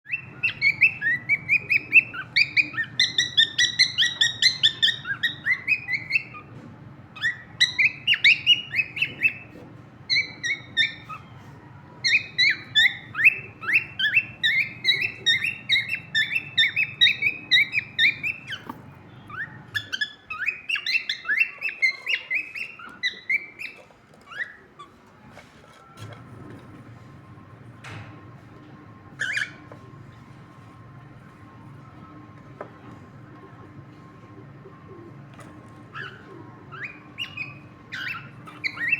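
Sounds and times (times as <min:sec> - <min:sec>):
cockatiel chirping: 0:00.1 - 0:06.5, 0:07.2 - 0:25.0, 0:29.1 - 0:29.8, 0:35.6 - 0:38.9.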